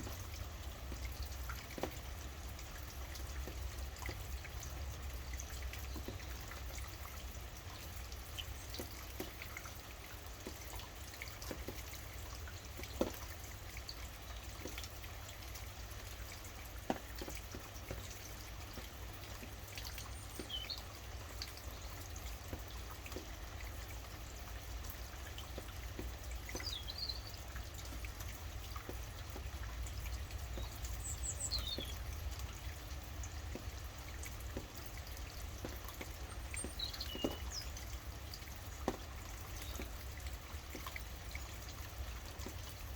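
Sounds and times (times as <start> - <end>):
low constant rumble: 0.0 - 42.9
steady rain: 0.0 - 42.9
bird chirping: 26.5 - 27.4, 30.5 - 32.0, 36.3 - 37.8.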